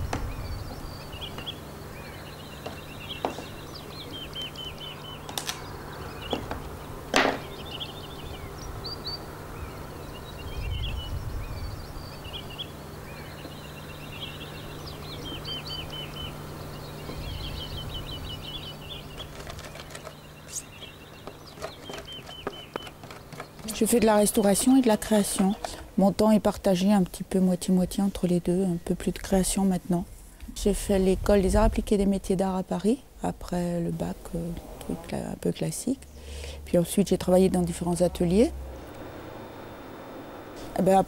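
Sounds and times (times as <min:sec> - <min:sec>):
small birds chirping: 0:00.0 - 0:30.0
steady low hum: 0:00.0 - 0:41.0.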